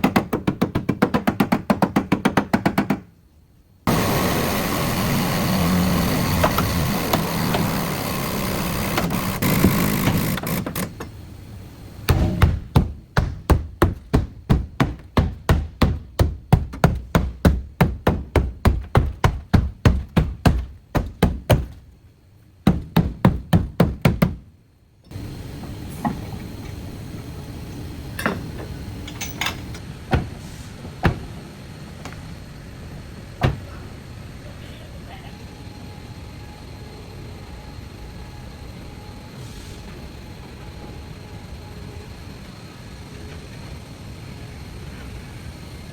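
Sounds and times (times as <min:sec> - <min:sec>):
low background noise: 0:00.0 - 0:45.9
hand-hammer blows: 0:03.9 - 0:11.1.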